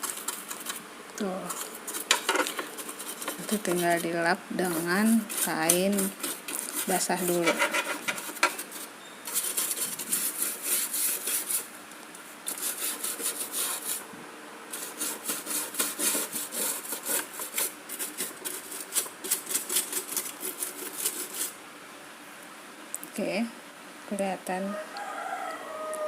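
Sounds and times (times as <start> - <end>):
scrubbing strokes on washing machine: 0.0 - 11.7, 12.4 - 14.1, 14.7 - 21.6.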